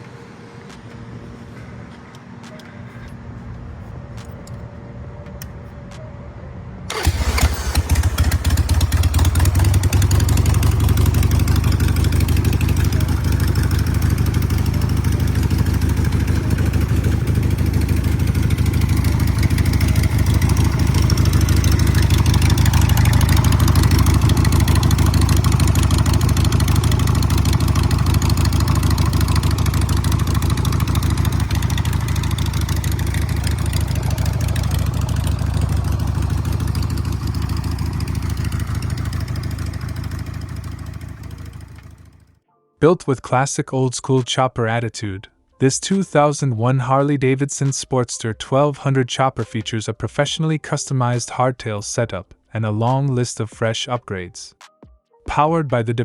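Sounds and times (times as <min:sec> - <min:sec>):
motorcycle engine starting and idling: 0:06.9 - 0:42.4.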